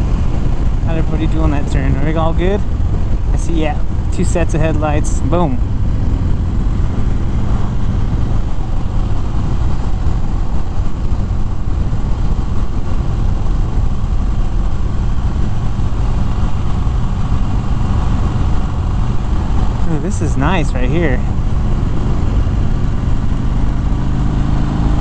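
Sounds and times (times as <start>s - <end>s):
motorcycle engine running: 0.0s - 25.0s
wind rush over microphone: 0.0s - 25.0s.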